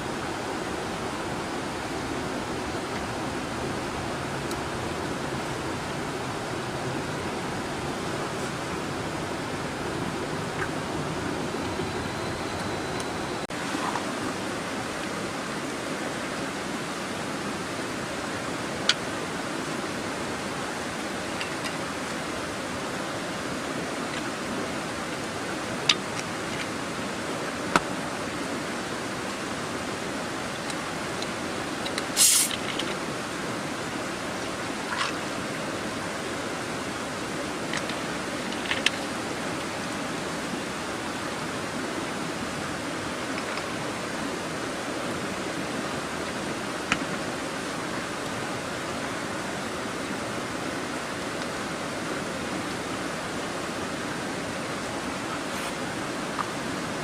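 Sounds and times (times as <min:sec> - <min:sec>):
mountain river rushing: 0:00.0 - 0:57.0
crackling burst: 0:32.2 - 0:32.6.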